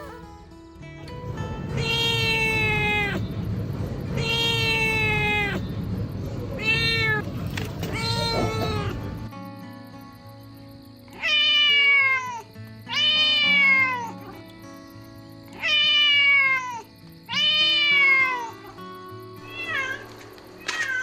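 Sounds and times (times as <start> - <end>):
soft background music: 0.0 - 21.0
kitten meowing: 1.8 - 3.2, 4.2 - 5.6, 6.6 - 9.2.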